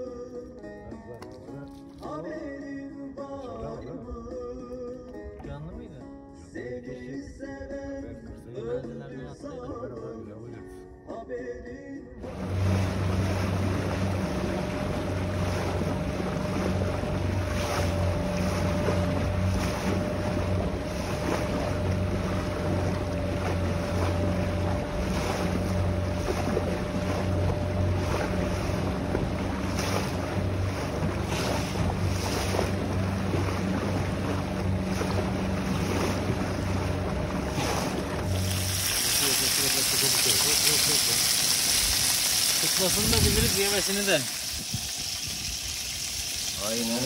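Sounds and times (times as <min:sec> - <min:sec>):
boat engine humming: 0:12.2 - 0:47.0
water rushing past hull: 0:12.2 - 0:47.0
wind buffeting microphone: 0:41.7 - 0:46.5.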